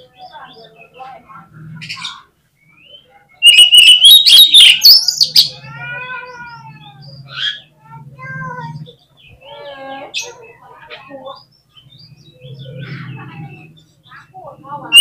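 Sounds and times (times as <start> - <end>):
soft drawn-out bird notes: 1.6 - 7.4
bird whistles and trills: 1.9 - 5.6.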